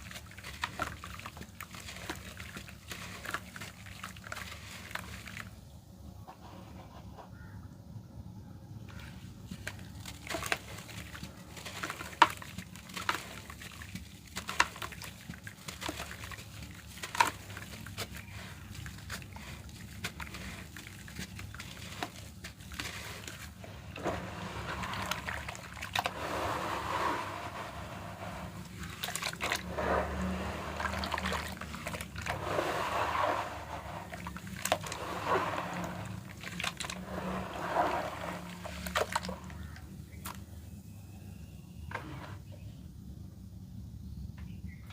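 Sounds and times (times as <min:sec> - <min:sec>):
dirt crumbling and crunching: 0:00.0 - 0:05.6, 0:08.9 - 0:40.4.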